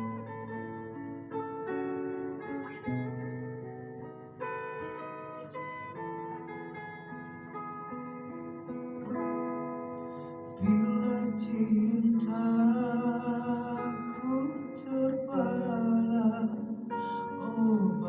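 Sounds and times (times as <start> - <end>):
acoustic guitar: 0.0 - 18.0
person singing with vibrato: 10.6 - 18.0.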